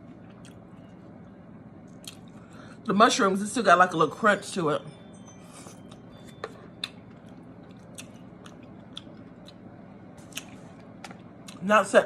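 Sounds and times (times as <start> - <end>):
chewing food: 6.8 - 9.7.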